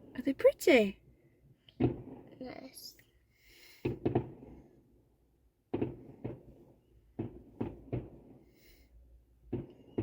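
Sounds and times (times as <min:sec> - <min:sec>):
muffled fireworks bangs: 0:01.7 - 0:02.9, 0:03.7 - 0:04.9, 0:05.6 - 0:10.0.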